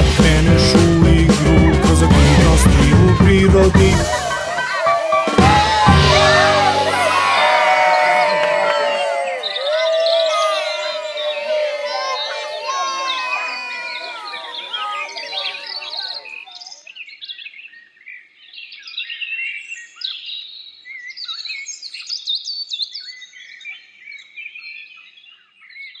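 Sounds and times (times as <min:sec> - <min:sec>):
crowd of voices: 0:00.0 - 0:16.7.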